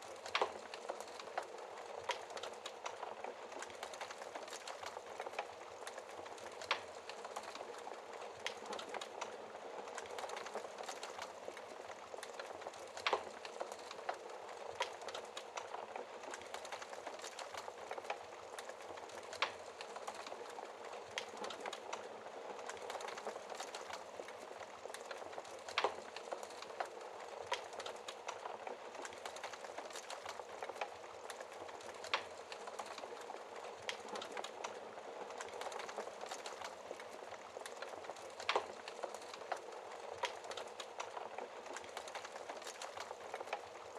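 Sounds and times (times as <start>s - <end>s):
wood fire crackling: 0.0s - 43.9s.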